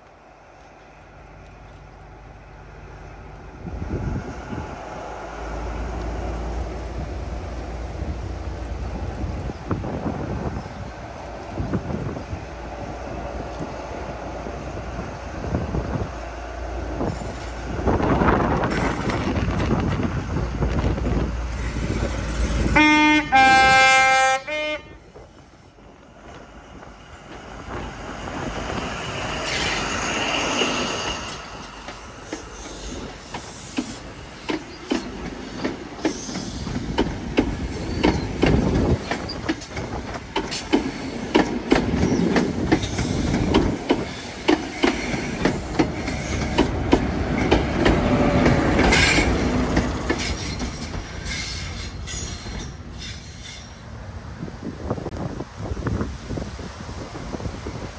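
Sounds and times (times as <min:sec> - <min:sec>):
train rumbling past: 0:00.0 - 0:57.9
train horn: 0:22.6 - 0:25.2
wheels clicking over rail joints: 0:31.2 - 0:52.6.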